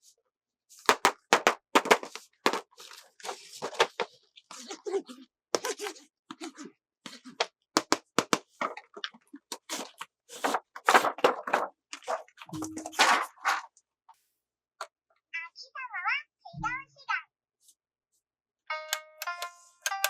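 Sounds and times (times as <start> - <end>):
plastic toys clicking and knocking: 0.9 - 4.9, 7.3 - 13.7
packaging crinkling: 9.7 - 12.3.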